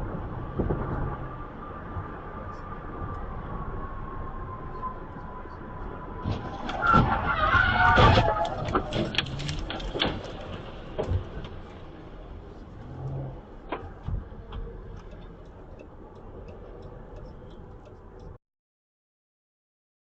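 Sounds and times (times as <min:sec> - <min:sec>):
vehicle road noise rumble: 0:00.0 - 0:18.4
light ticks: 0:12.5 - 0:18.4.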